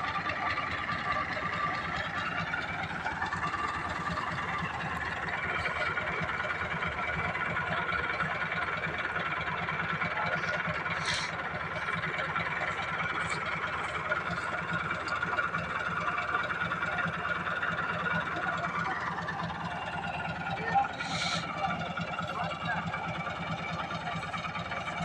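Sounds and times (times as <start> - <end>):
diesel engine rumbling: 0.0 - 25.0.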